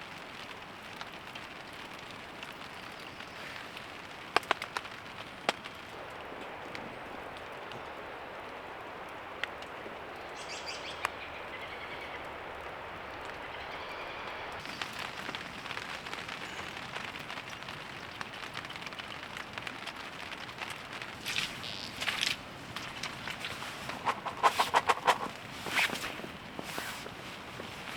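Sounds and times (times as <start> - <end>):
sharp drips ticking: 0.0 - 13.5, 14.3 - 27.9
steady rain falling: 0.0 - 27.9
rustling burst: 21.2 - 27.9.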